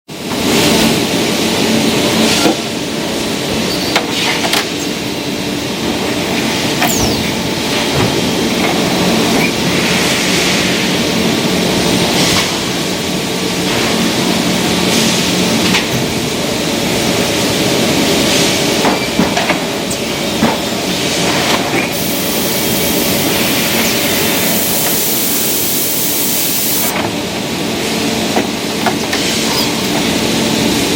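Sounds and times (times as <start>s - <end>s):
hiss: 21.9s - 26.9s
machine hum: 21.9s - 27.3s.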